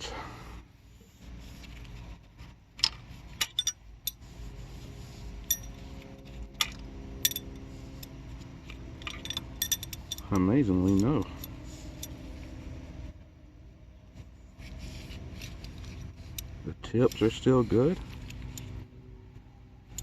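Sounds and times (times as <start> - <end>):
metal pushrods clinking: 2.8 - 4.2, 6.6 - 7.6, 9.0 - 12.2.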